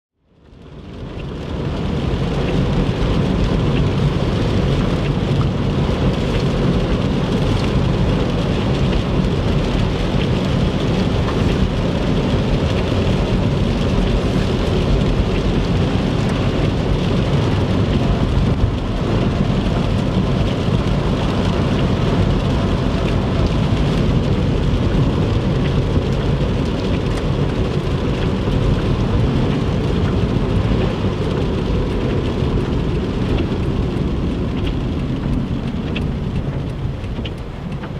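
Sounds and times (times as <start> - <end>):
rain on car: 0.2 - 37.9
road noise rumble: 0.2 - 37.9
tyres hissing on wet road: 0.5 - 37.9.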